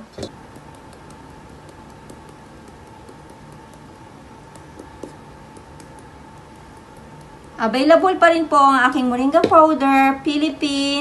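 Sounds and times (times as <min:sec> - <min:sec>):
hands kneading dough: 0:00.0 - 0:08.4
steady low hum: 0:00.0 - 0:11.0.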